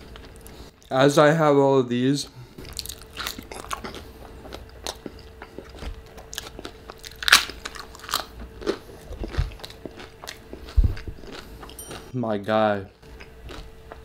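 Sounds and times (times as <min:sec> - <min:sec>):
crunchy chewing: 0:02.6 - 0:12.1, 0:13.0 - 0:14.0.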